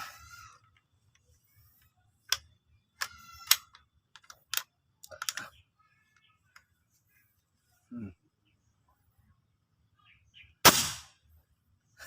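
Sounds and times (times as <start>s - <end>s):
hard parts clicking and clinking: 2.2s - 5.6s.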